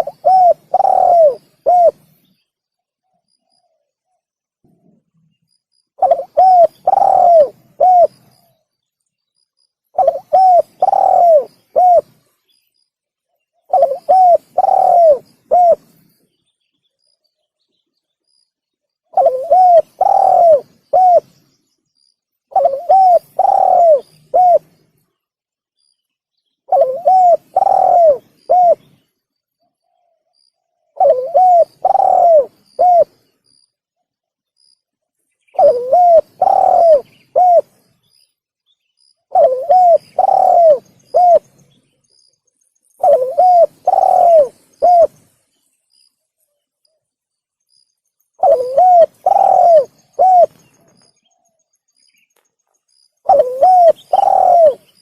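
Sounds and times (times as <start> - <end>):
dove cooing: 0.0 - 2.1, 6.0 - 8.5, 9.9 - 12.2, 13.6 - 16.0, 19.1 - 21.4, 22.5 - 24.8, 26.7 - 29.0, 30.9 - 33.3, 35.6 - 37.8, 39.3 - 41.6, 43.0 - 45.2, 48.4 - 50.9, 53.2 - 55.0.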